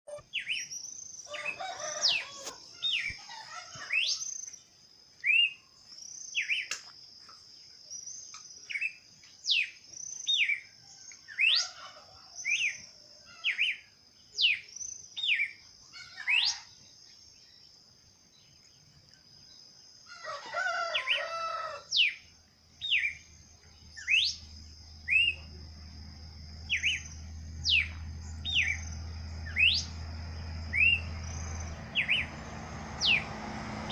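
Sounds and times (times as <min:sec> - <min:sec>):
songbirds chirping: 0:00.1 - 0:33.9
rough low bird calls: 0:26.6 - 0:33.9.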